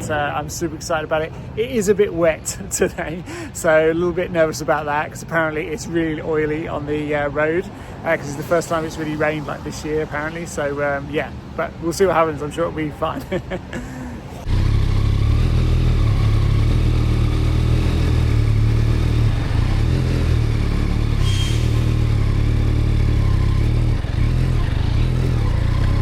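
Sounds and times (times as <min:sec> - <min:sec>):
motorcycle engine running: 0:14.5 - 0:26.0.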